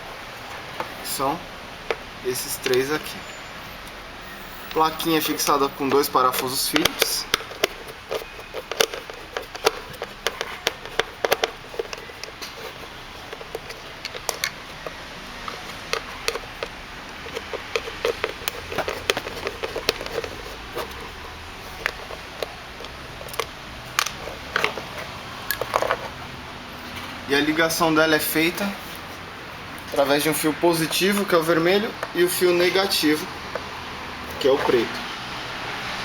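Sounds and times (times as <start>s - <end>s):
screwdriver working small screws: 4.5s - 26.2s.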